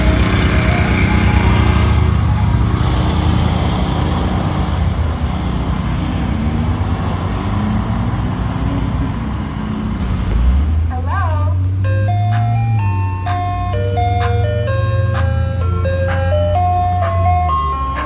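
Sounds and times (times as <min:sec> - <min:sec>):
vehicle engine running: 0:00.0 - 0:05.9, 0:09.7 - 0:18.0
road noise: 0:00.0 - 0:18.0.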